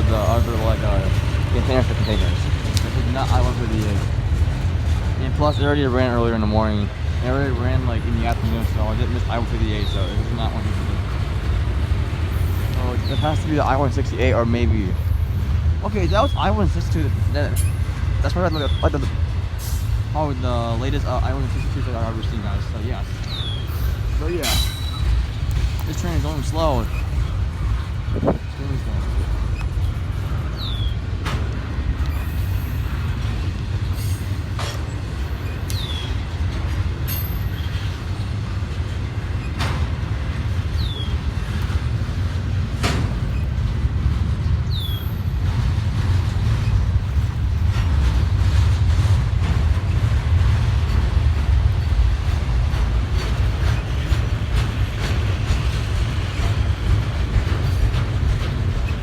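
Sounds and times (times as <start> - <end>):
train wheels rumbling on rail: 0.0 - 59.0
high squeaks: 20.9 - 27.3.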